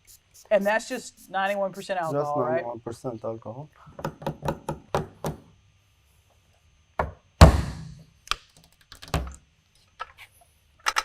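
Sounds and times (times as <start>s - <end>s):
tools knocking and tapping: 4.0s - 5.4s.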